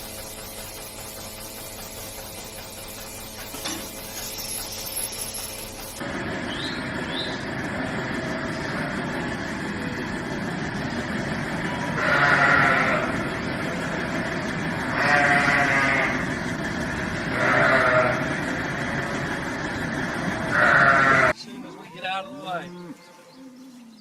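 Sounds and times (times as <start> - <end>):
young farm animal bleating: 11.6 - 13.3, 14.8 - 16.3, 17.3 - 18.3, 20.5 - 21.4.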